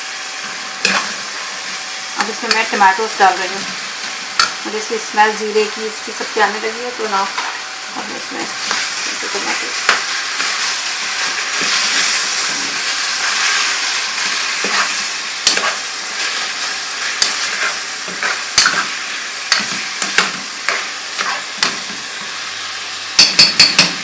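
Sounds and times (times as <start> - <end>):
masala sizzling in hot oil: 0.0 - 24.0
spoon scraping against pan: 8.4 - 22.1.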